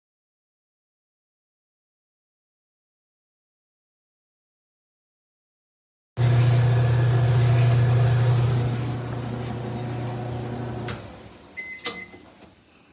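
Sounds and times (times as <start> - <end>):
electric motor humming: 6.2 - 11.5.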